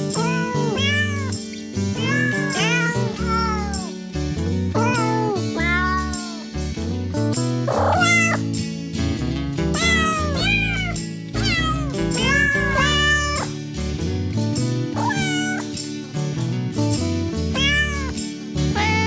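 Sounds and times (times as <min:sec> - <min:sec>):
background music with bass line: 0:00.0 - 0:19.0
cat meowing: 0:00.1 - 0:01.4, 0:02.0 - 0:03.9, 0:04.8 - 0:06.4, 0:07.7 - 0:08.5, 0:09.8 - 0:13.5, 0:15.0 - 0:15.8, 0:17.6 - 0:18.2, 0:18.8 - 0:19.0.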